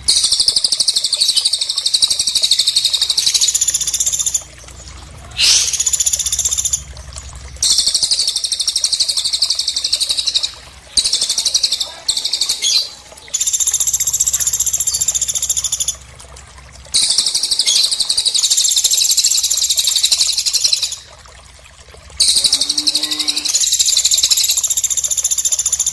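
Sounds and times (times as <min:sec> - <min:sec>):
bird high-pitched trills: 0:00.1 - 0:04.5, 0:05.4 - 0:06.9, 0:07.6 - 0:16.0, 0:17.0 - 0:21.1, 0:22.2 - 0:25.9
faint lower bird call: 0:05.3 - 0:06.8, 0:22.2 - 0:24.6.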